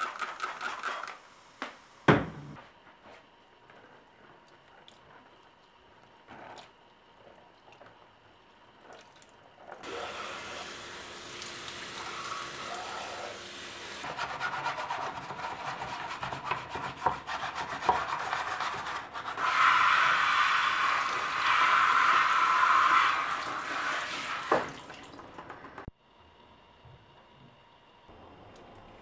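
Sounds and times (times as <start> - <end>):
kitchen tap running: 8.9 - 14.1, 19.5 - 25.9
scrubbing a surface: 14.0 - 24.5.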